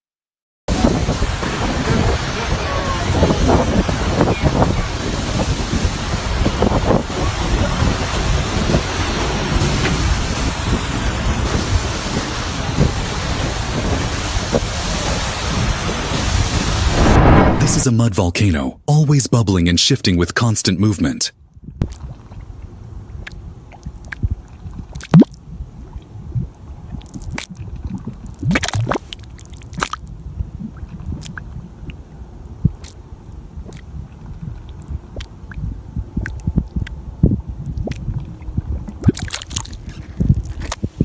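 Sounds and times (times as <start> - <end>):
mud bubbling and gurgling: 21.8 - 41.0
splashy mud burst: 28.3 - 30.0.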